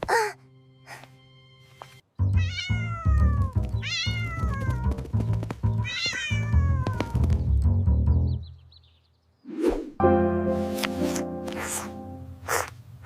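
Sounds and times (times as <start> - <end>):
kitten meowing: 2.4 - 4.8, 5.8 - 7.2.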